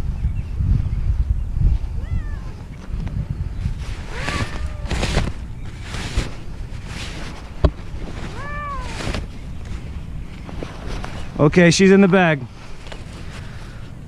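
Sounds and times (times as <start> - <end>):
cat meowing: 2.0 - 2.6, 4.1 - 5.1, 8.3 - 9.0
rustling: 2.2 - 13.8.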